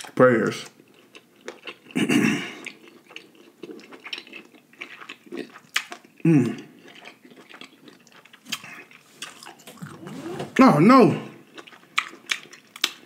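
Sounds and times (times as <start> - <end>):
close chewing: 0.6 - 10.2, 11.4 - 13.0
wet lip smacks and clicks: 11.6 - 13.0.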